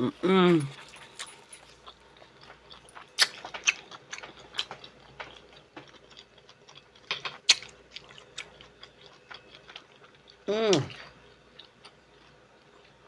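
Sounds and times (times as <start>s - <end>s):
mouth chewing smacks: 0.1s - 12.3s.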